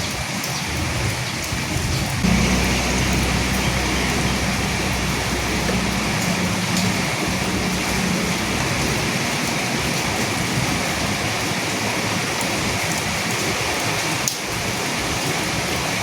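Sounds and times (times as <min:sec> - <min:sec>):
steady rain falling: 0:00.0 - 0:16.0
faint low rumble: 0:02.2 - 0:11.4.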